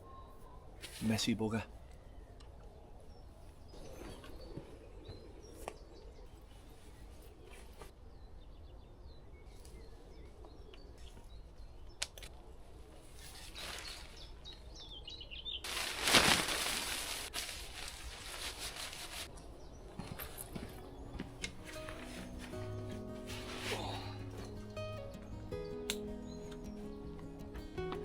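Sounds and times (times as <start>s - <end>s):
loud burst of rustling: 15.6s - 19.3s.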